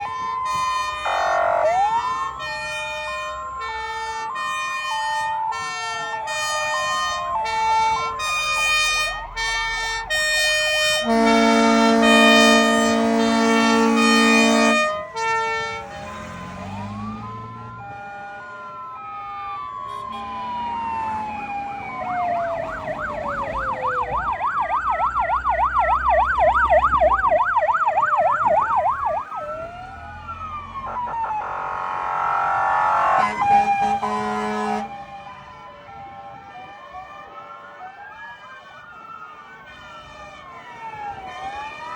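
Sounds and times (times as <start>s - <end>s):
fire engine horn blast: 0.0s - 20.7s, 28.8s - 36.1s, 39.5s - 40.4s
fast yelping siren: 0.0s - 41.9s
two-tone sirens: 0.0s - 41.9s
wailing sirens: 0.0s - 41.9s.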